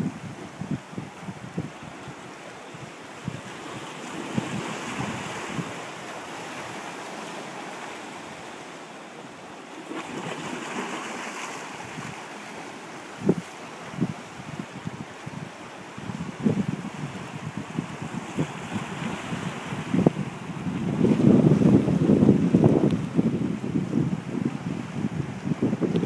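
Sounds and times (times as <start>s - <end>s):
wind buffeting microphone: 0.0s - 7.2s, 10.2s - 26.0s
waves breaking and washing in: 0.0s - 26.0s.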